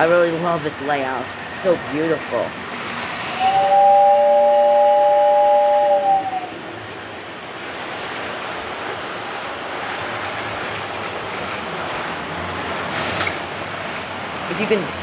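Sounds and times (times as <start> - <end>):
model train rumbling on track: 0.0 - 15.0
model train two-note horn: 3.3 - 6.6.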